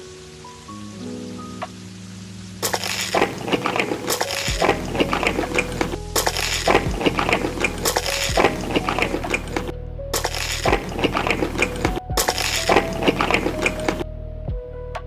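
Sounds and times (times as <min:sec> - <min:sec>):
crunching food being eaten: 0:02.6 - 0:14.0.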